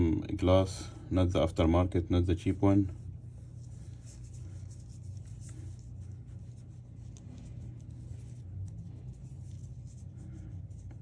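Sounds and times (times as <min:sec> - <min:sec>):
steady low hum: 0:00.0 - 0:11.0
light scratching and rubbing: 0:02.9 - 0:11.0.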